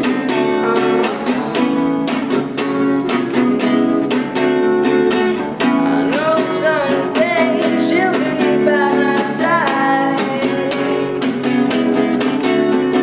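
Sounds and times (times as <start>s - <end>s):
person singing: 0.0s - 2.7s, 5.4s - 13.0s
guitar strumming: 0.0s - 13.0s.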